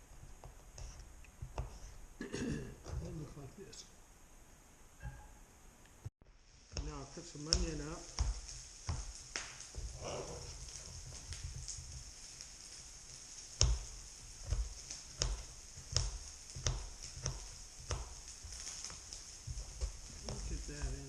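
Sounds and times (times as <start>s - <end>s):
steady high hiss: 0.0s - 21.0s
knife chopping on cutting board: 0.2s - 2.0s, 6.7s - 11.7s, 13.6s - 21.0s.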